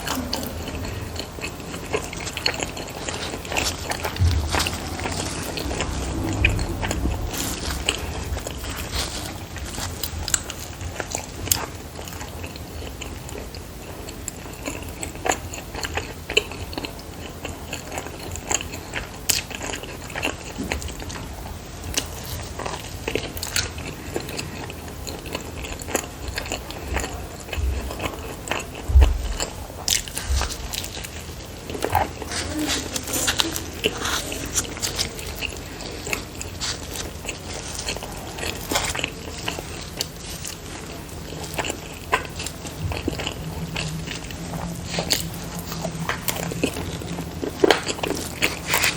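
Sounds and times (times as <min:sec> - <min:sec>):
dull low thumps: 0:04.1 - 0:09.5, 0:28.8 - 0:29.7
chewing with wet mouth clicks: 0:09.0 - 0:21.2, 0:21.9 - 0:48.9.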